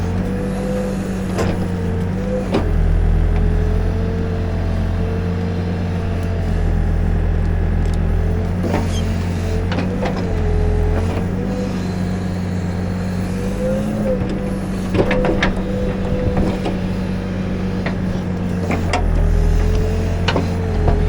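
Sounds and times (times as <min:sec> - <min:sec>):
diesel engine running: 0:00.0 - 0:21.0
hydraulic whine: 0:07.4 - 0:21.0.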